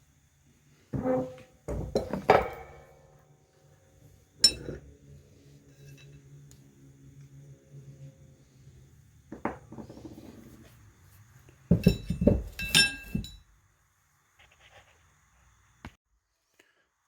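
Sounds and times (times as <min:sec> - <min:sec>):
metal tools clanking: 0:04.4 - 0:04.8, 0:11.7 - 0:13.4.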